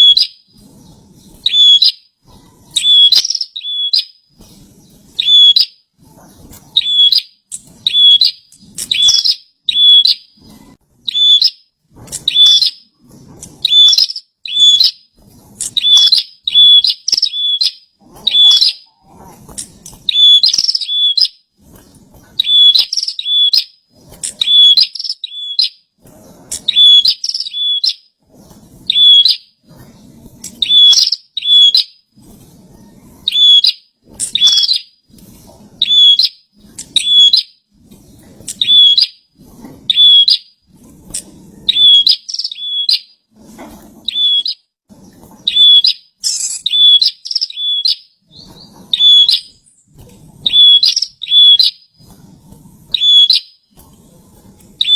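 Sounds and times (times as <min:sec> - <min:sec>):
bird singing sharp high calls: 0:00.0 - 0:00.4, 0:01.4 - 0:02.1, 0:02.8 - 0:04.2, 0:05.2 - 0:05.8, 0:06.8 - 0:10.3, 0:11.1 - 0:11.6, 0:12.2 - 0:12.8, 0:13.6 - 0:15.0, 0:15.6 - 0:18.9, 0:20.1 - 0:21.4, 0:22.4 - 0:25.8, 0:26.6 - 0:28.1, 0:28.9 - 0:29.4, 0:30.6 - 0:31.9, 0:33.3 - 0:34.9, 0:41.7 - 0:43.1, 0:44.1 - 0:44.6, 0:45.4 - 0:49.8, 0:50.5 - 0:51.8, 0:53.0 - 0:53.6.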